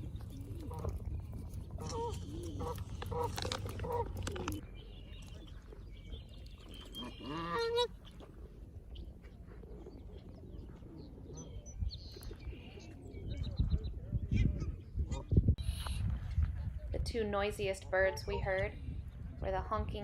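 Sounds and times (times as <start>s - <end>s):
geese honking: 7.0s - 8.2s.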